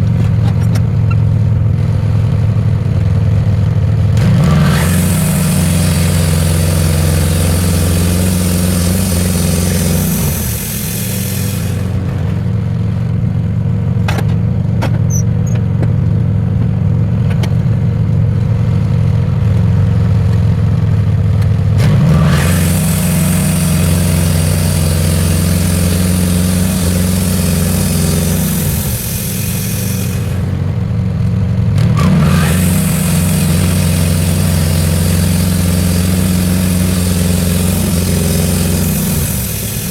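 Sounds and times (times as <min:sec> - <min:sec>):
sawmill engine running: 0:00.0 - 0:39.9
band blade cutting log hiss: 0:04.2 - 0:12.1, 0:21.8 - 0:30.8, 0:31.9 - 0:39.9.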